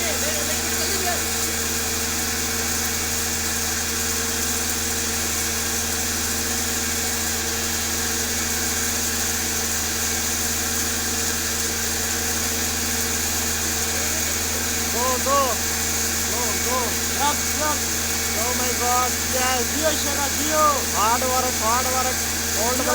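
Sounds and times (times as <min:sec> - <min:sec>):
diesel engine idling: 0:00.0 - 0:04.0, 0:12.1 - 0:22.9.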